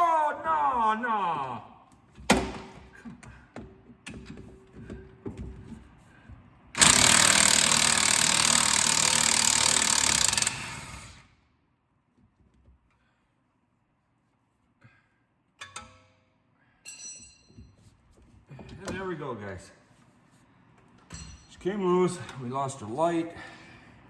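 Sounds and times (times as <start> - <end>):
impact wrench hammering: 6.8 - 11.2.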